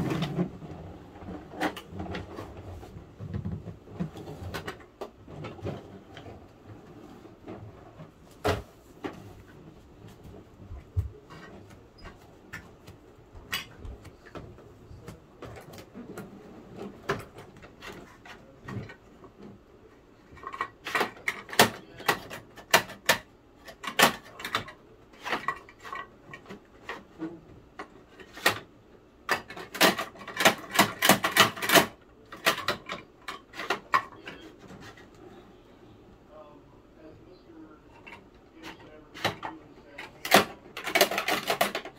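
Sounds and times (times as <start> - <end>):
plastic toy truck clattering: 0.0 - 7.7, 20.2 - 27.2, 27.8 - 35.2, 37.9 - 41.9.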